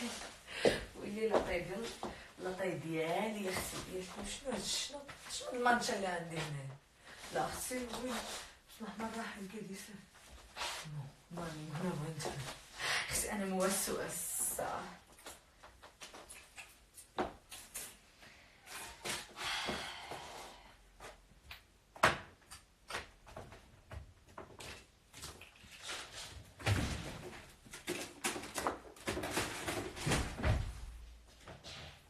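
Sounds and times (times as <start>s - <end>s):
household things clattering: 26.5s - 30.8s.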